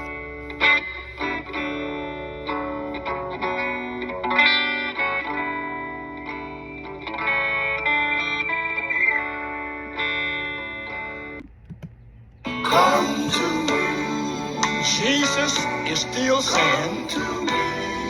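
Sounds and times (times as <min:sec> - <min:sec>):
electric guitar chords: 0:00.0 - 0:11.5, 0:12.5 - 0:18.0.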